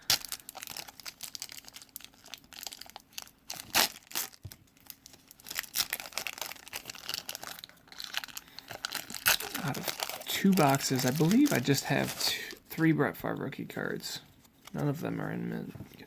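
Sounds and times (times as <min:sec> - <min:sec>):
card pack wrapper crinkling and tearing: 0:00.0 - 0:12.6.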